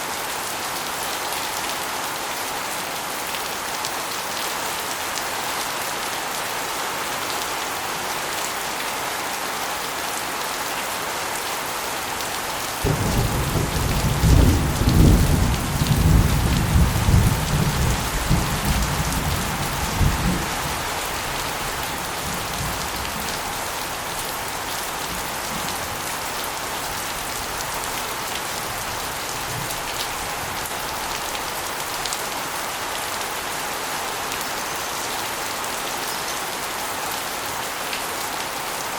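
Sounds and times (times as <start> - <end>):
steady rain: 0.0 - 38.9
low rumble of thunder: 12.8 - 20.8.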